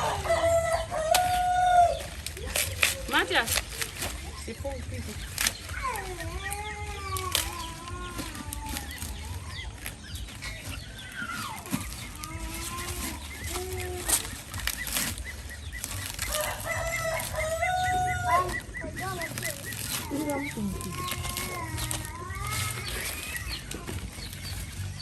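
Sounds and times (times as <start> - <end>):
chicken clucking: 0.0 - 5.6, 7.6 - 25.0
rooster crowing: 16.3 - 18.6.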